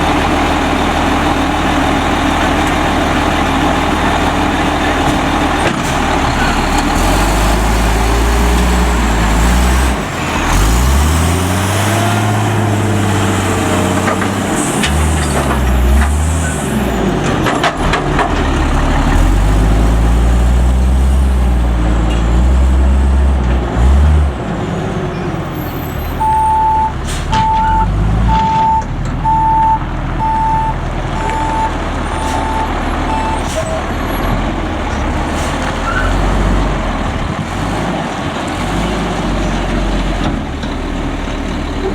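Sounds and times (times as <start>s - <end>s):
diesel engine revving: 0.0s - 41.9s
backup alarm beeping: 26.2s - 33.5s.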